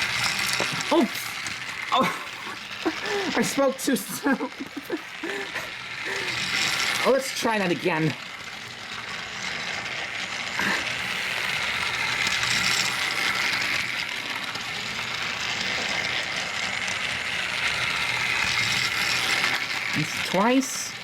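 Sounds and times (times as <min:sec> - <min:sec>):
toy train motor whirring: 0:00.0 - 0:21.0.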